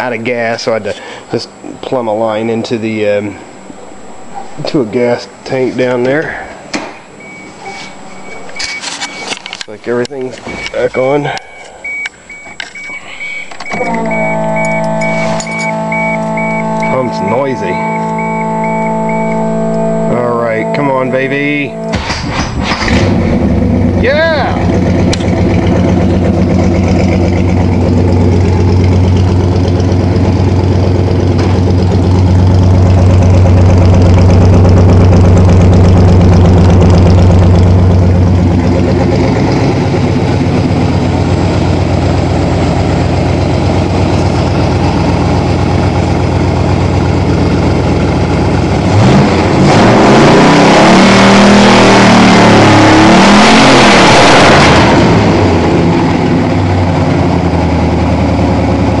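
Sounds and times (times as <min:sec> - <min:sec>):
car engine idling: 0:09.4 - 0:49.8, 0:54.8 - 0:59.0
engine revving: 0:13.6 - 0:59.0.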